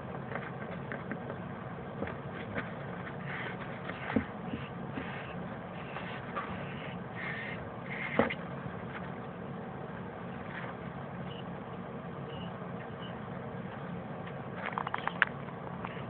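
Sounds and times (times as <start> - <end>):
steady low hum: 0.0 - 16.0
nestling birds peeping: 3.2 - 8.4.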